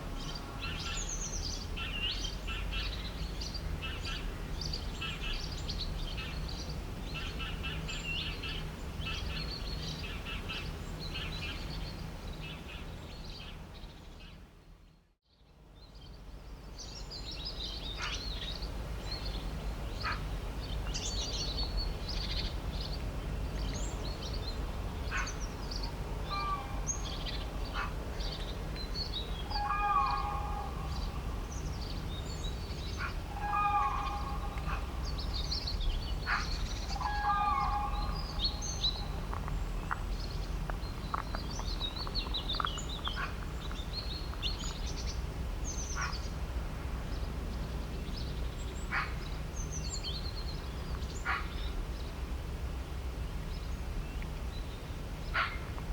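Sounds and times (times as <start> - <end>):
low background rumble: 15.8 - 55.9
birds chirping: 23.6 - 46.4
low bird calls: 25.1 - 46.3.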